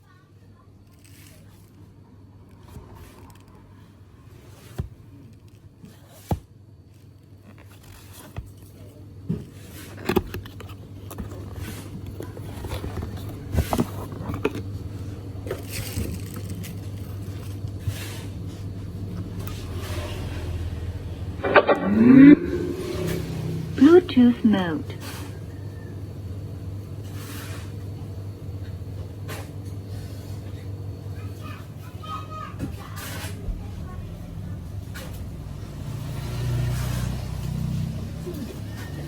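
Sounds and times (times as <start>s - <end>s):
packaging scraping and rubbing: 0.8s - 24.3s.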